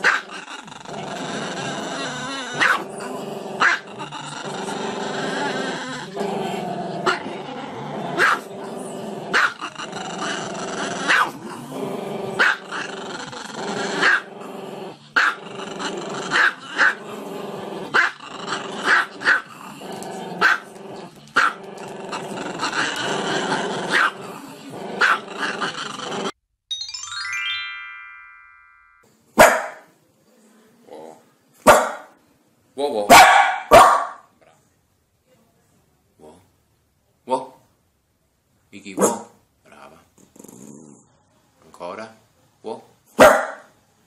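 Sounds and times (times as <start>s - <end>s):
dog barking: 0.0s - 0.2s, 2.6s - 2.8s, 3.6s - 3.8s, 8.2s - 8.5s, 9.3s - 9.6s, 11.1s - 11.4s, 12.4s - 12.6s, 14.0s - 14.2s, 18.9s - 19.4s, 20.4s - 20.6s, 23.9s - 24.1s, 25.0s - 25.2s, 29.4s - 29.9s, 31.6s - 32.2s, 33.1s - 34.3s, 39.0s - 39.4s, 43.2s - 43.7s.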